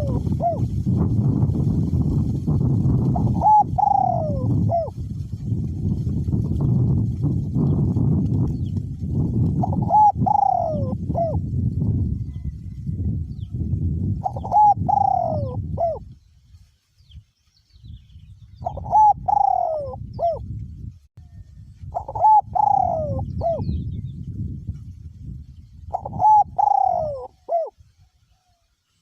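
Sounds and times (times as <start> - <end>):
dove cooing: 0.0 - 0.8, 2.9 - 5.0, 9.2 - 12.5, 14.2 - 16.1, 18.6 - 20.5, 21.3 - 23.8, 25.9 - 28.6
wind rumbling on microphone: 0.0 - 29.0.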